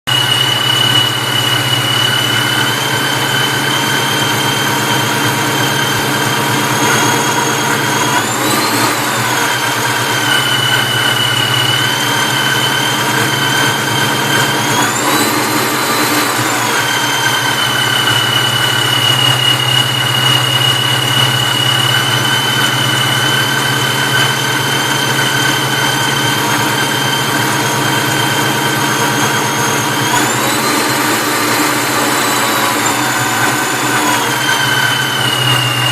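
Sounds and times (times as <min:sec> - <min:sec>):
supercharger whining: 0:00.0 - 0:35.9.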